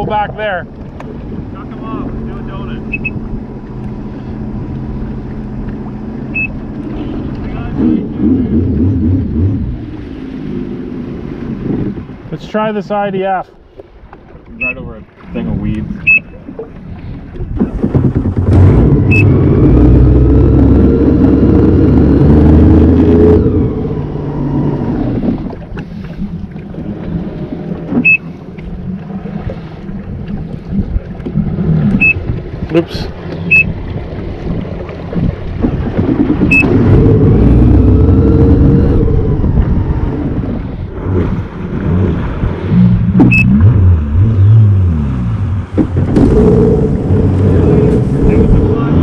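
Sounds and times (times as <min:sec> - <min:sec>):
personal watercraft engine revving: 0:00.0 - 0:13.4, 0:14.5 - 0:49.0
short electronic beep: 0:02.9 - 0:03.2, 0:06.3 - 0:06.6, 0:16.0 - 0:16.4, 0:19.1 - 0:19.3, 0:28.0 - 0:28.2, 0:32.0 - 0:32.2, 0:33.5 - 0:33.7, 0:36.5 - 0:36.7, 0:43.2 - 0:43.6.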